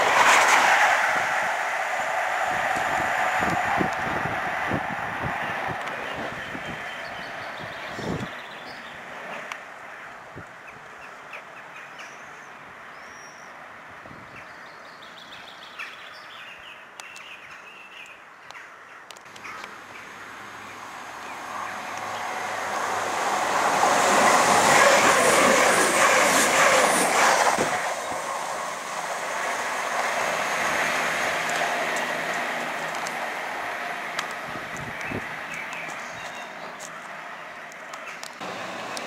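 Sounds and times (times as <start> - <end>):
train rushing past: 0.0 - 9.5, 20.2 - 37.5, 38.4 - 39.0
birds chirping: 5.4 - 9.5, 34.7 - 38.4.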